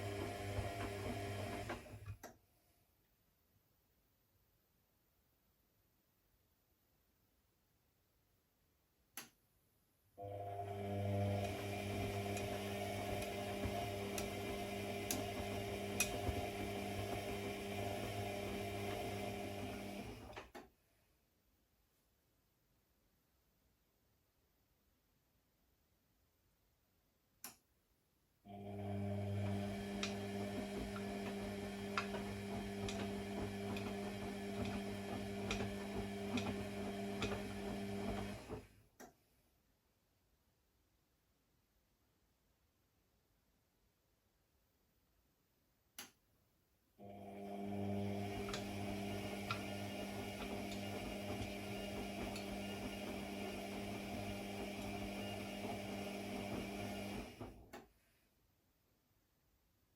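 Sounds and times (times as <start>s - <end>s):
click: 2.0s - 2.4s, 9.1s - 9.4s, 27.4s - 27.7s, 39.0s - 39.2s, 45.9s - 46.2s
electric motor humming: 10.6s - 20.2s, 28.8s - 38.5s, 47.5s - 57.4s.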